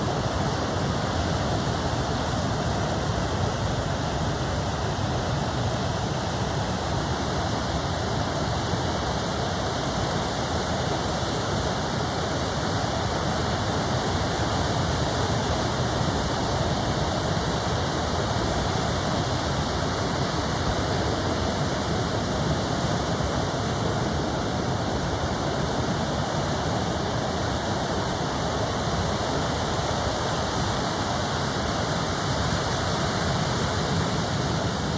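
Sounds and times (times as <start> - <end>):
ocean surf roaring: 0.0 - 34.9.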